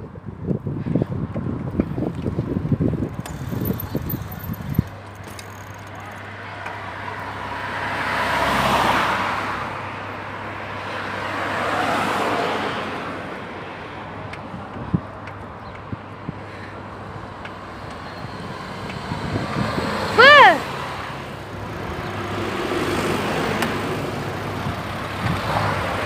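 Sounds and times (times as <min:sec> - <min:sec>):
wind buffeting microphone: 0:00.0 - 0:05.2, 0:13.6 - 0:20.2, 0:23.4 - 0:26.0
cars passing: 0:00.9 - 0:26.0.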